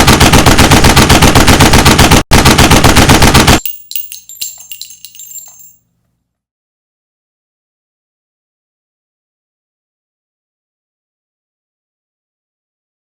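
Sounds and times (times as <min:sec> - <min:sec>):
machine-gun fire: 0:00.0 - 0:03.7
metallic clinks and rattles: 0:03.6 - 0:05.8.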